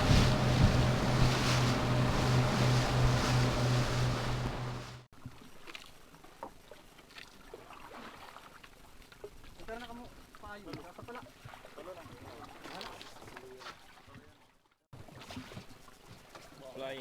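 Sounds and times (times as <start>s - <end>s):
loud wind: 0.0s - 5.0s
boat engine running: 0.0s - 5.1s
water rushing: 0.0s - 5.1s.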